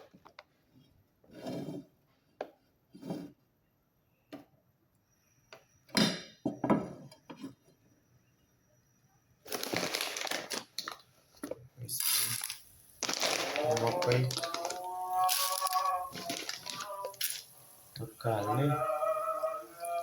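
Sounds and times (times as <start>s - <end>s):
popcorn kernels crackling in oil: 9.5s - 11.1s, 11.9s - 20.0s.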